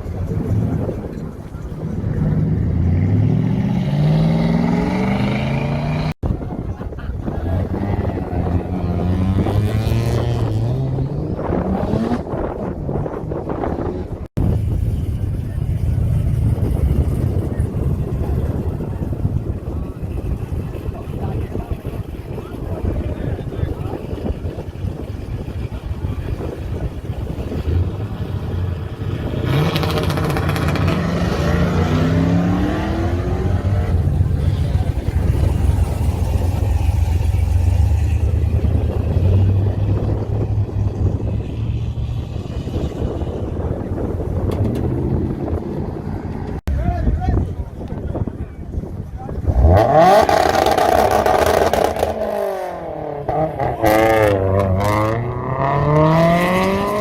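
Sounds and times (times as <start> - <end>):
car engine rumbling: 0.0 - 57.0
car accelerating hard: 1.8 - 6.2, 13.9 - 46.6, 49.3 - 57.0.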